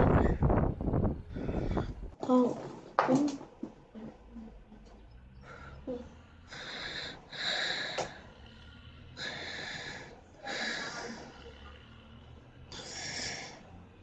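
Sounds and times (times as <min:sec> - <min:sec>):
person breathing: 0:01.2 - 0:02.2, 0:05.3 - 0:14.0.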